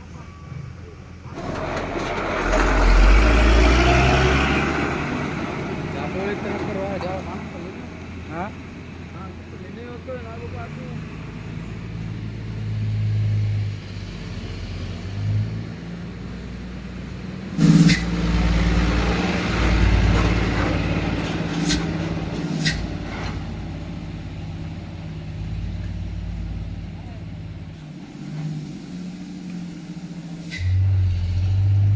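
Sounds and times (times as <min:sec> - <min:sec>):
truck engine running: 0:00.0 - 0:12.8, 0:16.6 - 0:31.9
loud sudden noise: 0:17.5 - 0:18.6.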